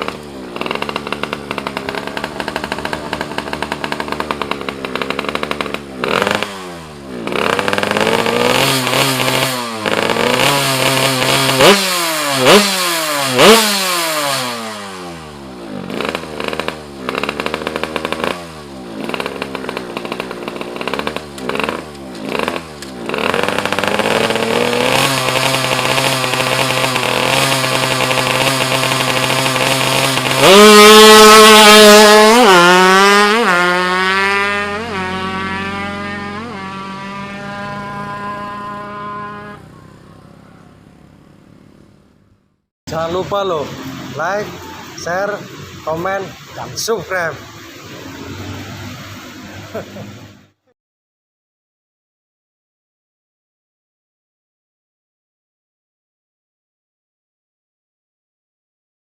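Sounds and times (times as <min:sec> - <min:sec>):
two-stroke engine revving: 0:00.0 - 0:42.2, 0:42.9 - 0:50.7.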